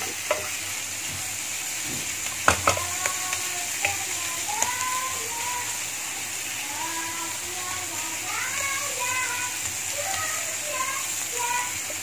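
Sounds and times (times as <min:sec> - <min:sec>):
spoon knocking and scraping pan: 0:00.0 - 0:05.0
food sizzling in a pan: 0:00.0 - 0:12.0.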